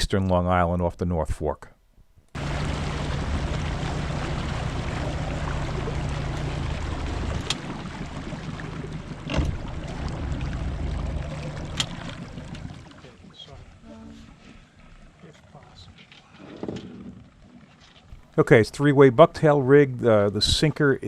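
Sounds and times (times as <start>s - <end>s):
wind: 0.0s - 21.0s
water noise: 2.3s - 21.0s
boat engine running: 2.4s - 18.2s.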